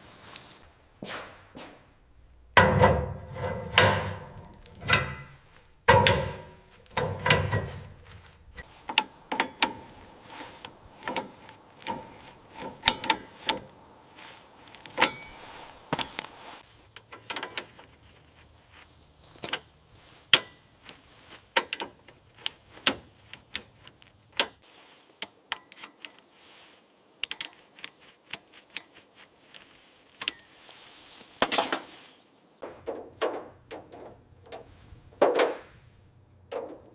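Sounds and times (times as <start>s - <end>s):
heavy knocks: 2.4s - 16.4s
clicks and taps of tools: 2.6s - 24.6s.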